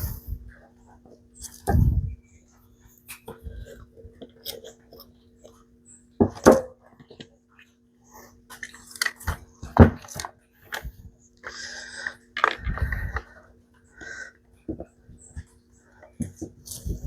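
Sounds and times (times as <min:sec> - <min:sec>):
steady low hum: 0:00.0 - 0:17.0
plastic parts clicking and knocking: 0:12.0 - 0:13.3.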